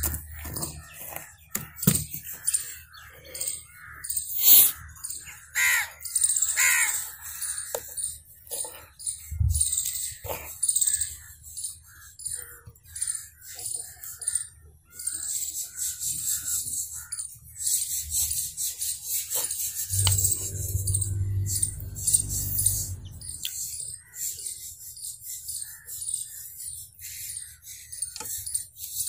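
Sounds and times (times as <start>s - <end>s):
small birds chirping: 0.0s - 29.0s
low steady hum: 19.9s - 23.8s.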